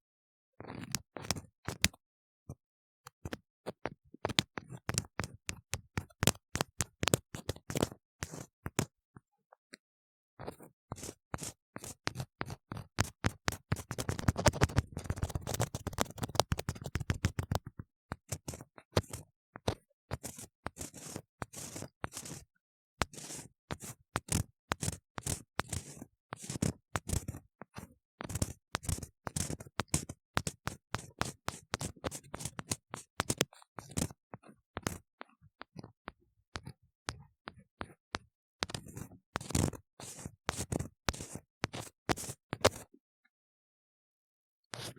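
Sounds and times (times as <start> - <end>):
tool scraping inside ear model: 10.5 - 35.7, 36.6 - 42.9.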